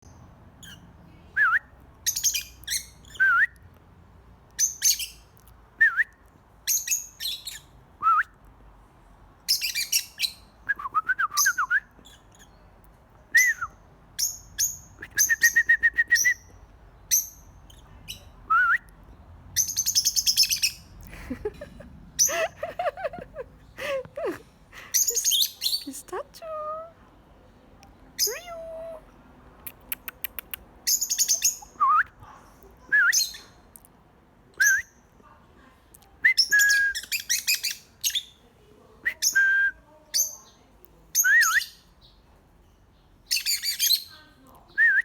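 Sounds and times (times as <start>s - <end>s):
pet birds chirping and calling: 2.0s - 3.2s, 4.5s - 5.3s, 6.7s - 7.8s, 9.5s - 10.5s, 12.0s - 12.8s, 19.6s - 26.9s, 27.8s - 31.8s, 36.4s - 38.4s, 42.9s - 44.4s.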